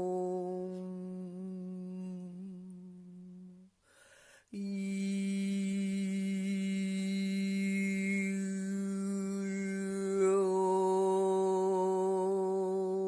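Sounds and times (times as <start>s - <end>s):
person humming low note: 0.0s - 3.7s
breath: 3.8s - 4.5s.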